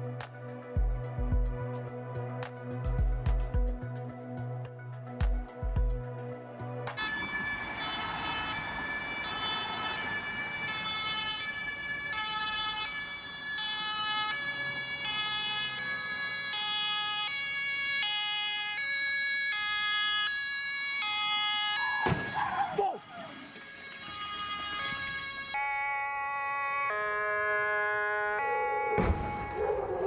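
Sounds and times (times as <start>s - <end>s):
road noise: 0.0s - 25.6s
two-tone emergency siren: 7.0s - 30.0s.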